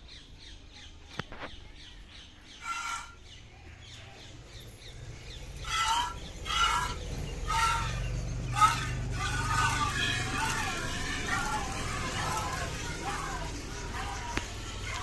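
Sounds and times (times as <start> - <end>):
chickens squawking: 2.6 - 3.2, 5.6 - 15.0.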